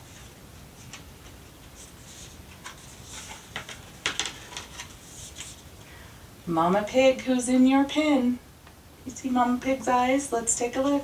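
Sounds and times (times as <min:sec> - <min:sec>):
book page rustling: 0:00.0 - 0:05.7.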